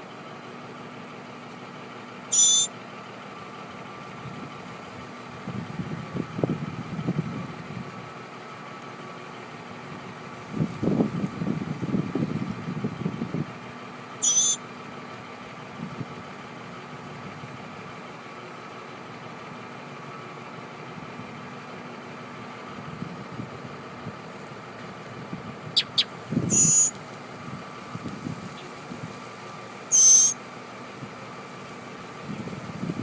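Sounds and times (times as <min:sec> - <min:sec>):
baby birds high-pitched calls: 0:02.3 - 0:02.8, 0:14.2 - 0:14.7, 0:25.7 - 0:27.0, 0:29.8 - 0:30.4.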